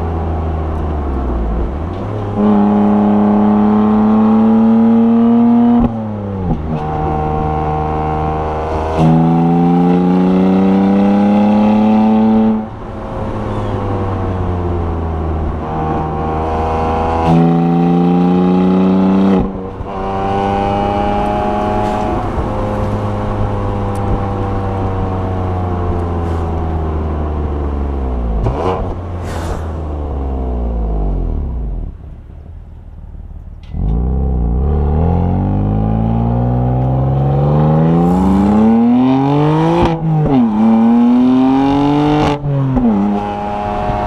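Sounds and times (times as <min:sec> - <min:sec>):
car engine accelerating hard: 0:00.0 - 0:32.2, 0:33.3 - 0:44.0
engine rev blip: 0:33.5 - 0:44.0.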